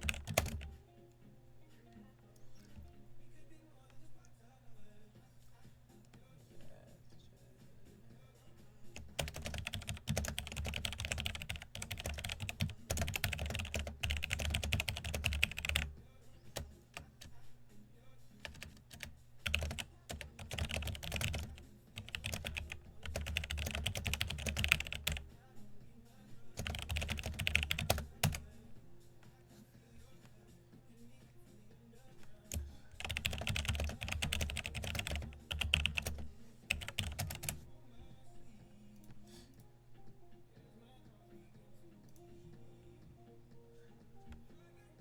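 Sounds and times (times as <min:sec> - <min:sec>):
computer keyboard typing: 0:00.0 - 0:00.8, 0:09.0 - 0:17.4, 0:18.4 - 0:25.3, 0:26.5 - 0:28.5, 0:32.2 - 0:37.6.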